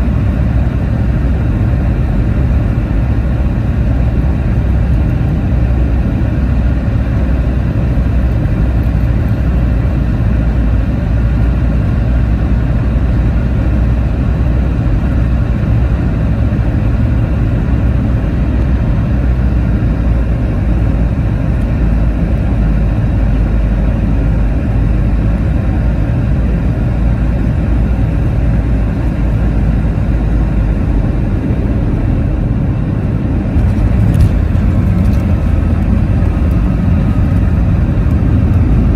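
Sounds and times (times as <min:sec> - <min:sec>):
airplane cabin engine rumble: 0:00.0 - 0:38.9
airflow noise: 0:24.6 - 0:38.9.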